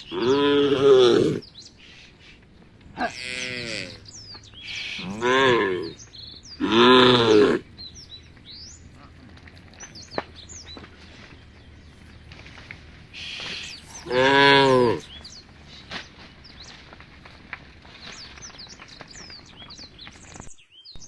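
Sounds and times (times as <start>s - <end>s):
cows mooing: 0.0s - 20.0s
small birds chirping: 0.0s - 21.0s.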